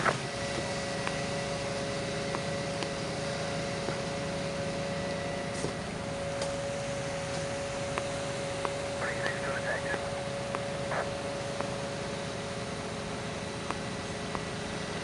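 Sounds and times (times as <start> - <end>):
constant tone: 0.0 - 15.0
machine hum and hiss: 0.0 - 15.0.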